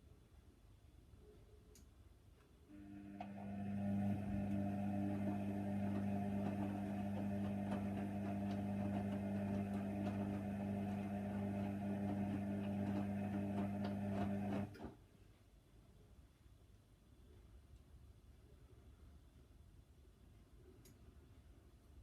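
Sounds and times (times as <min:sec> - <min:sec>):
washing machine motor hum: 0:02.7 - 0:15.0.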